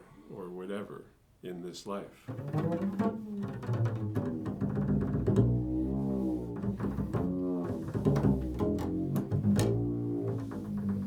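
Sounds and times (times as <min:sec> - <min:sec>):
plucked low string instrument: 0:02.3 - 0:11.0.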